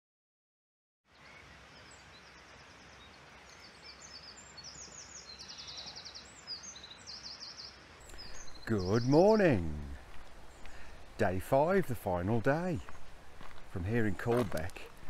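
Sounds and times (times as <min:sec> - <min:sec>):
faint outdoor background noise: 0:01.1 - 0:15.0
small birds singing: 0:01.1 - 0:15.0.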